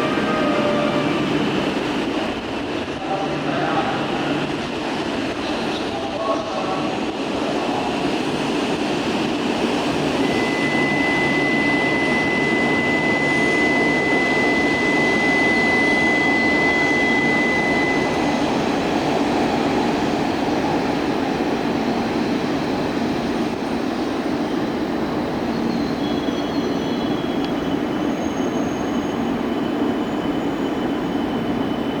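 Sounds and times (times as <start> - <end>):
high-pitched tone: 0.0 - 1.6
high-speed train rumble and rush: 0.0 - 32.0.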